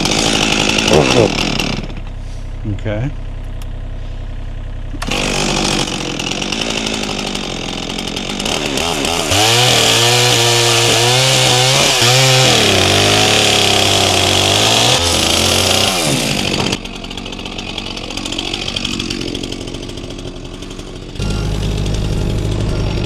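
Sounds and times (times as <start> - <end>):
chainsaw cutting a log: 0.0 - 2.2, 5.0 - 23.0.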